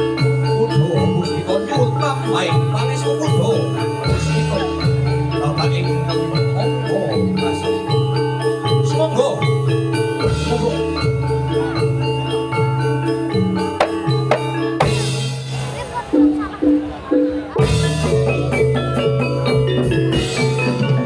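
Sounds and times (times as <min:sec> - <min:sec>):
gamelan music over sound system: 0:00.0 - 0:21.0.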